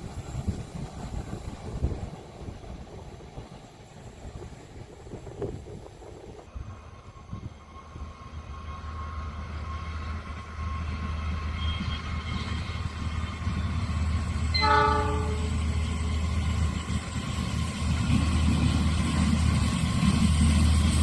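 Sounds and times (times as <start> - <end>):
train rumbling: 0.0 - 21.0
locomotive horn blast: 14.6 - 15.6.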